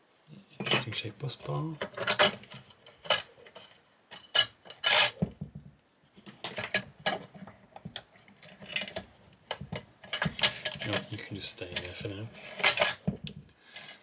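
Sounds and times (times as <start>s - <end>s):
metal parts clinking: 1.8s - 5.2s, 8.4s - 9.1s, 10.0s - 13.1s
metal scrapes: 4.7s - 5.2s, 11.7s - 13.1s.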